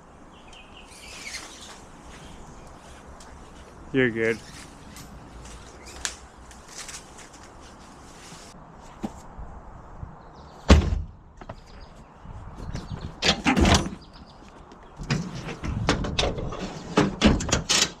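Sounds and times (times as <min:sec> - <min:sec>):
loud thump: 0:10.7 - 0:11.2.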